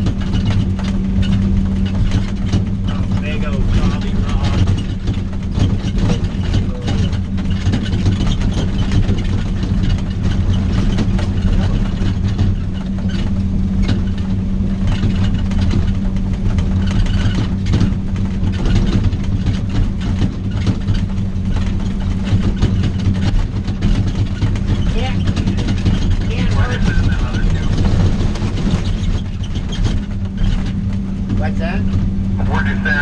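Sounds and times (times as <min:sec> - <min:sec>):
rattles and knocks on rough road: 0:00.0 - 0:33.0
vehicle engine running under load: 0:00.0 - 0:33.0.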